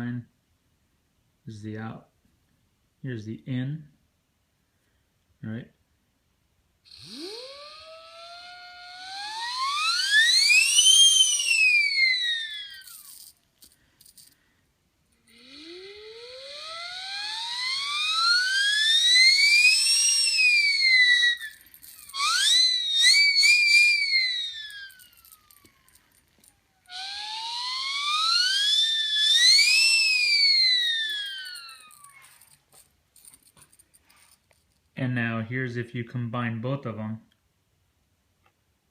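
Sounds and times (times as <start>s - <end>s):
siren whistle wailing: 6.9s - 13.2s, 15.3s - 32.6s.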